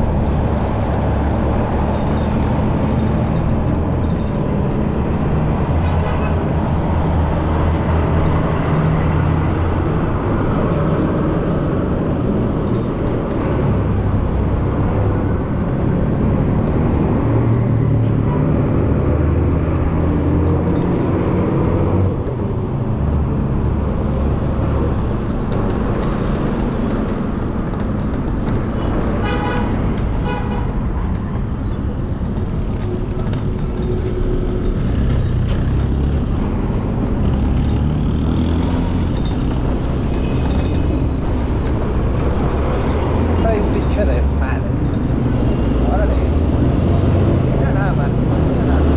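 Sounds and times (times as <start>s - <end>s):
road traffic rumble: 0.0s - 48.9s
vehicle horn toot: 29.2s - 30.8s.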